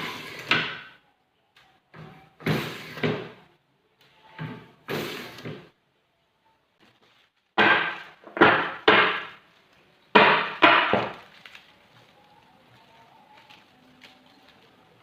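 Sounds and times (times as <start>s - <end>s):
tool striking wood: 7.6s - 9.4s, 10.1s - 11.2s.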